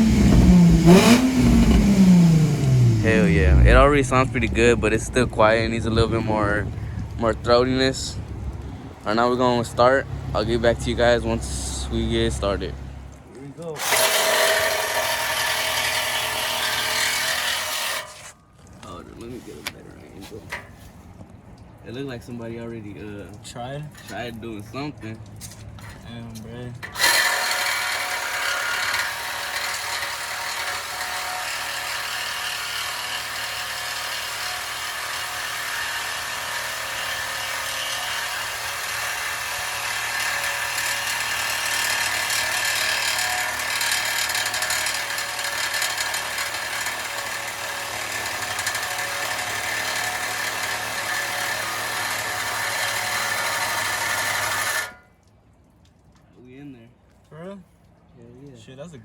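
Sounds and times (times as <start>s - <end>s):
power tool cutting metal pipe: 0.0s - 8.2s, 9.1s - 12.8s, 13.8s - 18.3s, 26.8s - 55.0s.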